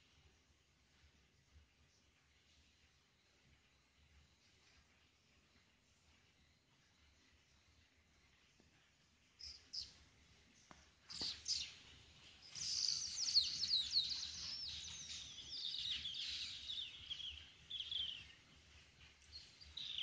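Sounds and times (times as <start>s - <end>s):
small birds twittering: 1.9s - 20.0s.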